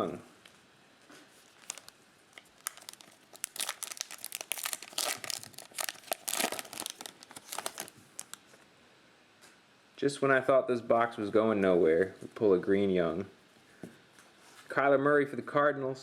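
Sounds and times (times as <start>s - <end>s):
plastic wrapper crinkling and tearing: 1.3s - 8.4s.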